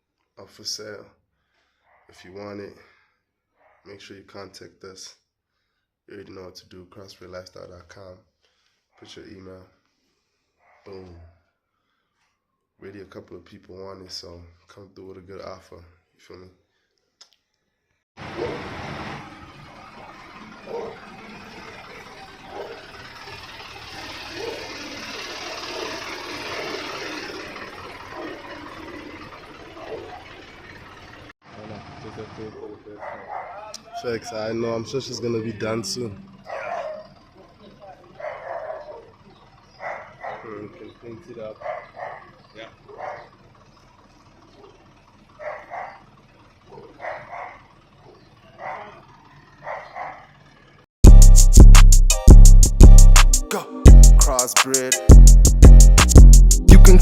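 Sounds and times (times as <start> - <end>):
dog barking: 1.8 - 2.2, 3.6 - 3.9, 10.6 - 11.4, 20.6 - 21.0, 22.4 - 22.9, 29.8 - 30.4, 32.9 - 33.9, 36.4 - 40.6, 41.5 - 43.4, 44.5 - 44.8, 45.4 - 46.1, 46.7 - 50.4
vehicle engine running: 18.2 - 32.9, 34.8 - 54.4, 55.1 - 57.0
hip-hop music with heavy beat: 51.0 - 57.0.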